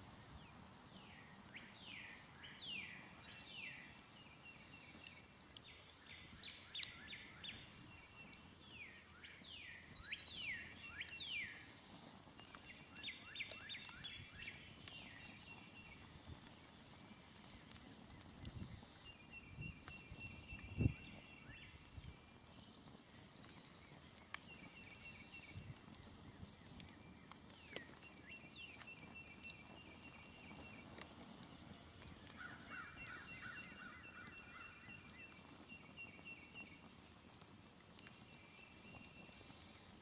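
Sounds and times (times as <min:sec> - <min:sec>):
faint songbirds singing: 0:00.2 - 0:40.0.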